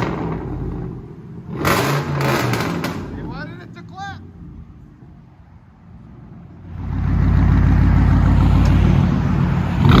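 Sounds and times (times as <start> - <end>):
car engine revving: 0.0 - 3.3, 6.6 - 10.0
exhaust cracks: 0.0 - 3.7.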